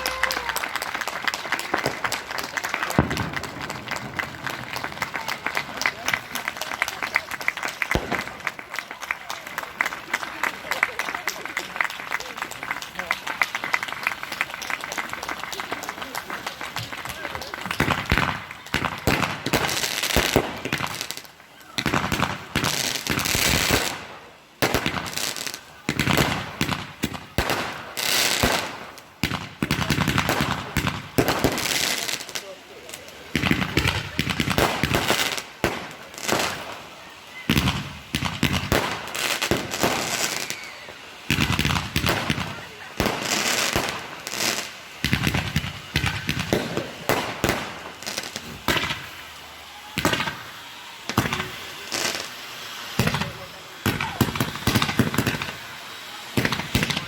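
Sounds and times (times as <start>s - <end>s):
fireworks bangs and crackles: 0.0s - 57.0s
fireworks hissing: 0.0s - 57.0s.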